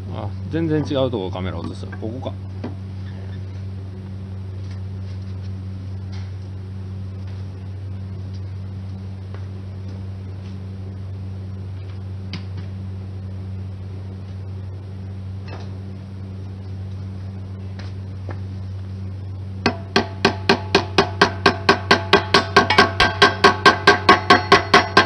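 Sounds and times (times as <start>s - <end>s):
welding transformer hum: 0.0s - 25.0s.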